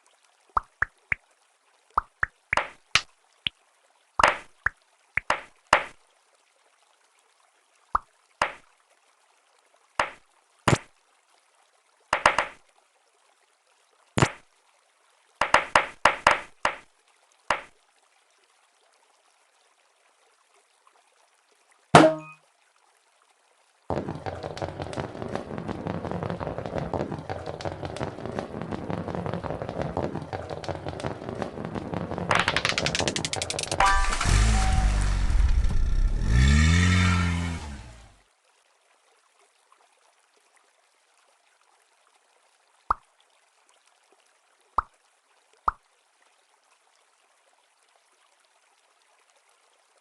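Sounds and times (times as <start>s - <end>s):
toy cars clicking and knocking: 32.3s - 34.5s.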